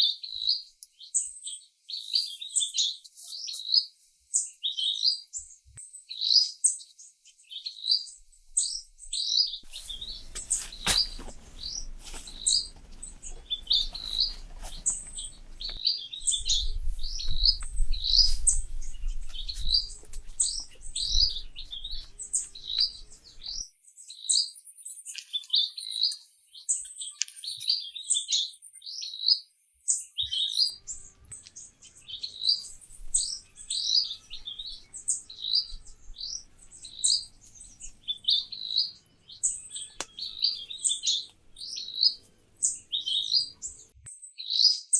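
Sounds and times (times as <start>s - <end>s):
small bird chirping: 0.0s - 44.9s.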